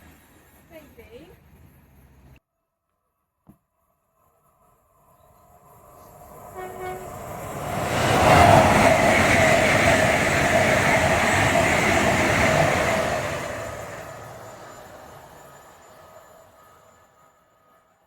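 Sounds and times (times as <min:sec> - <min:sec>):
train passing close by: 0:04.3 - 0:18.0
train horn: 0:06.4 - 0:08.6.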